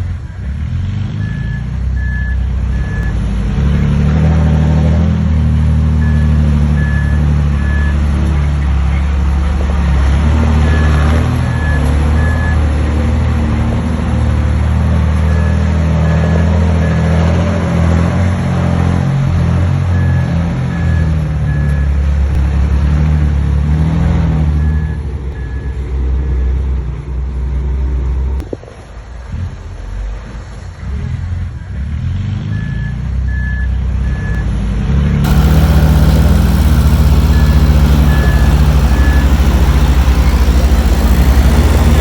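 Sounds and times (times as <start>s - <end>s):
heavy diesel machinery running: 35.2s - 42.0s
reversing alarm beeps: 35.3s - 42.0s.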